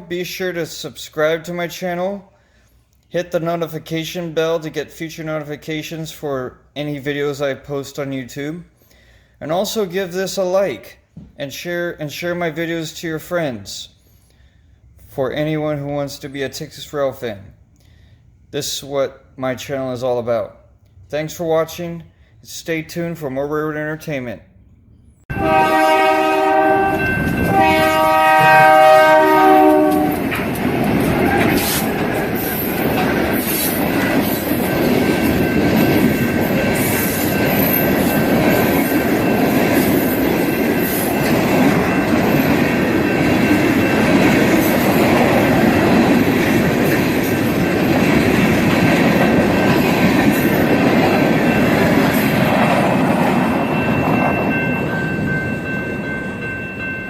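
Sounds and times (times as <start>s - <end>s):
train rumbling past: 24.5s - 57.0s
train horn chord: 25.3s - 30.4s.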